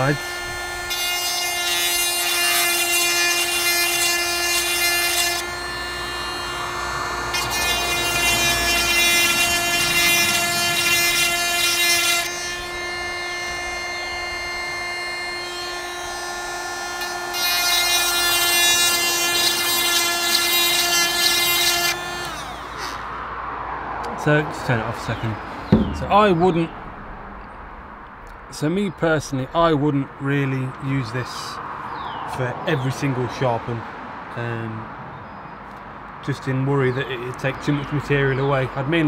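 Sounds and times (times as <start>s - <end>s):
grinding rasp against chain: 0.0s - 23.0s
grinder motor whining: 0.0s - 23.2s.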